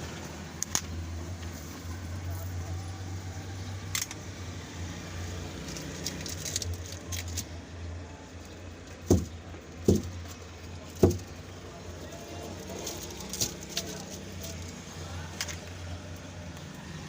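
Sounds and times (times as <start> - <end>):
heavy thumps: 9.0 - 11.4.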